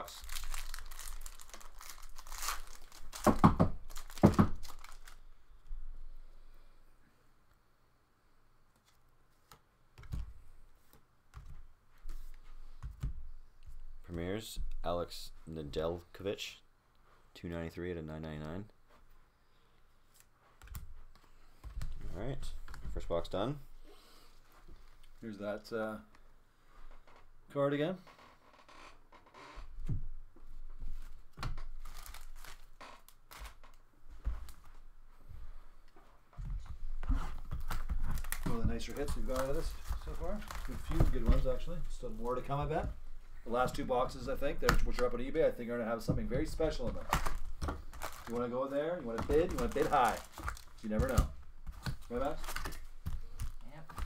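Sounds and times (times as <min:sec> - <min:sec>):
packaging crinkling and rustling: 0:00.0 - 0:05.2, 0:31.0 - 0:33.8, 0:37.0 - 0:42.6, 0:46.3 - 0:54.0
packaging tearing: 0:00.0 - 0:05.2, 0:31.8 - 0:33.6, 0:37.7 - 0:41.0, 0:47.0 - 0:48.4, 0:49.2 - 0:53.6.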